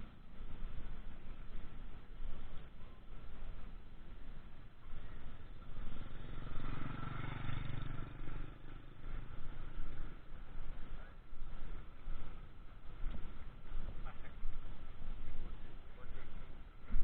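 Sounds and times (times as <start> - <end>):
outdoor background noise: 0.0 - 17.0
engine passing by: 4.9 - 12.6.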